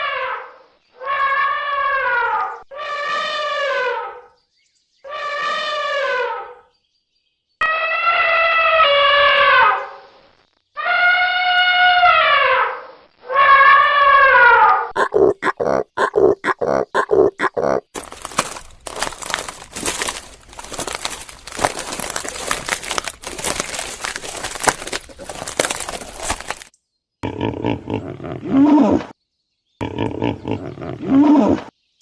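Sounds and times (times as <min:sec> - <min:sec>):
animal calls: 0:13.5 - 0:26.6.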